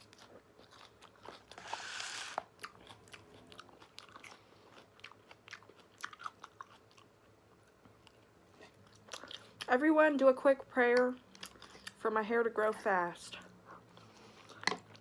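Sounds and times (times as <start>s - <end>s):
person chewing with mouth clicks: 0.0s - 9.7s, 11.3s - 12.0s
loud bite crunch: 1.2s - 3.2s.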